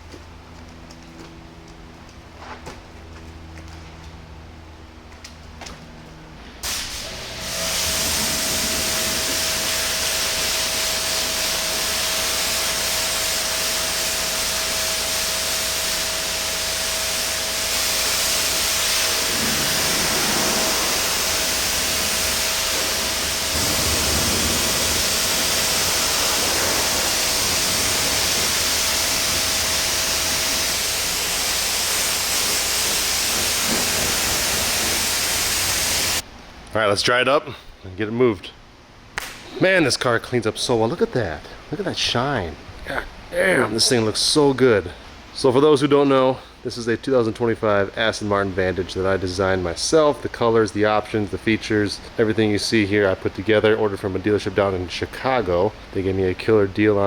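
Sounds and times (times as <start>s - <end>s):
pump motor whine: 0.0s - 36.3s
pressure washer spraying water: 6.6s - 36.2s.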